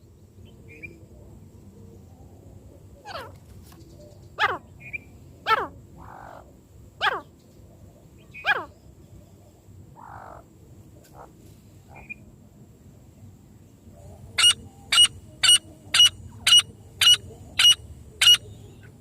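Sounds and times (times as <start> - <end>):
faint bird chirps: 0.0 - 1.0, 1.6 - 12.3, 13.9 - 19.0
francolin calling: 2.9 - 7.4, 8.2 - 9.0, 10.0 - 12.3, 13.9 - 19.0.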